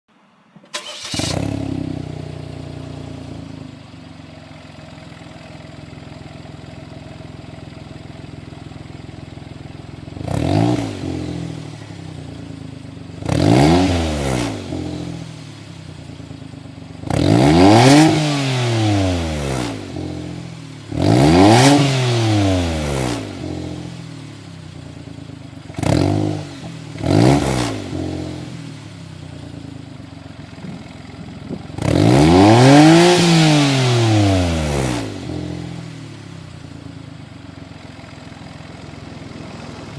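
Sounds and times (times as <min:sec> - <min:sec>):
car engine revving: 0:00.7 - 0:03.6, 0:10.0 - 0:12.4, 0:13.2 - 0:15.8, 0:16.4 - 0:24.3, 0:25.0 - 0:36.3, 0:37.2 - 0:39.9
car engine idling: 0:00.7 - 0:10.6, 0:11.3 - 0:13.4, 0:14.7 - 0:17.4, 0:23.4 - 0:27.3, 0:28.0 - 0:32.2, 0:35.2 - 0:39.9.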